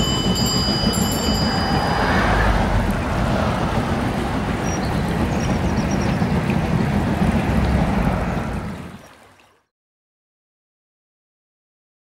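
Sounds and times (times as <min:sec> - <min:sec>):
passing train rumbling: 0:00.0 - 0:09.4.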